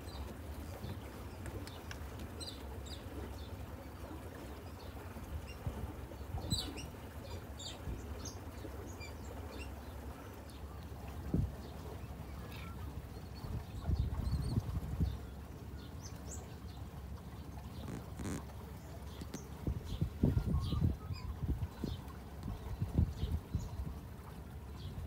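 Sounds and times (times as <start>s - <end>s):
wind rumble on microphone: 11.2s - 11.8s, 12.9s - 15.4s, 17.8s - 25.0s
small birds chirping: 11.6s - 23.9s.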